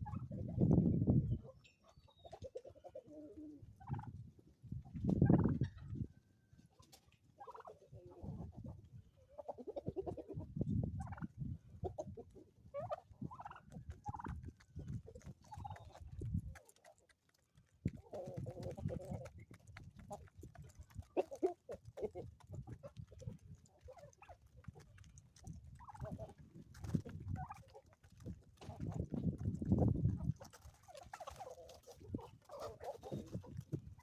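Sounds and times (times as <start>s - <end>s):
chickens clucking: 0.0s - 34.0s
turkeys gobbling: 1.6s - 4.2s, 6.7s - 8.2s, 9.3s - 11.3s, 11.9s - 14.4s, 20.9s - 24.8s, 25.4s - 27.9s, 30.4s - 34.0s.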